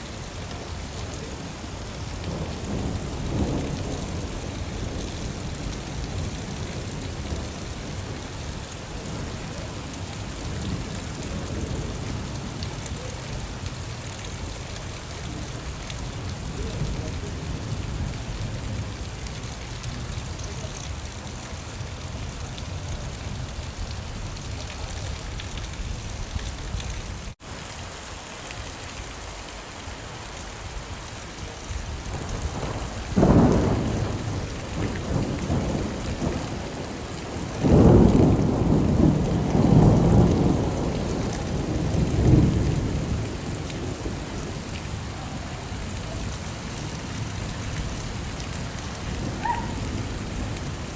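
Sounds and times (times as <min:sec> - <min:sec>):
steady rain falling: 0:00.0 - 0:50.9
thunder rumbling: 0:31.9 - 0:50.9.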